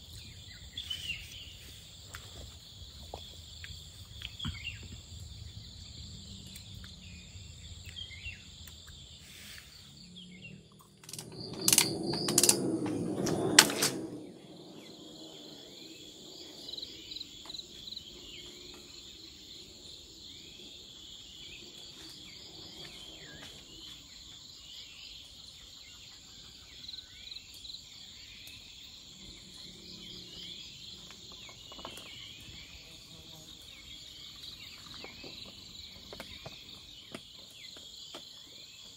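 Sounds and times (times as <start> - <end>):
crickets chirring: 0.0 - 38.9
high insect chirps: 0.0 - 38.9
sharp clicks: 11.0 - 14.2.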